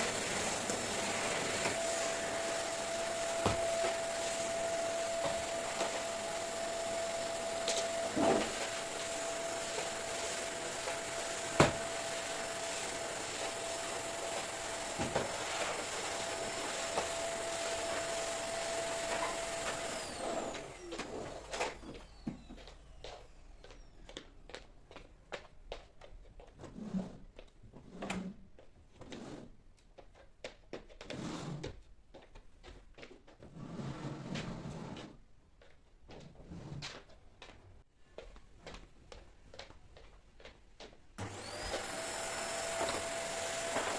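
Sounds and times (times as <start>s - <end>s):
rubbing or sliding sounds: 26.6s - 28.4s, 29.0s - 29.6s, 31.0s - 31.8s, 33.4s - 35.2s, 36.2s - 37.0s.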